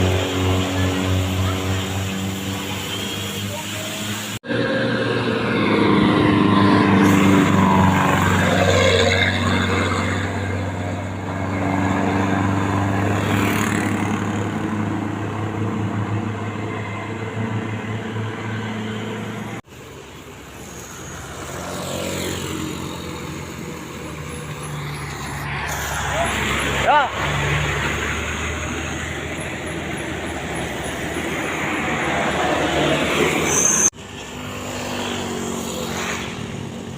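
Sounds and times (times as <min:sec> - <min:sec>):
traffic engine hum: 0:00.0 - 0:36.9.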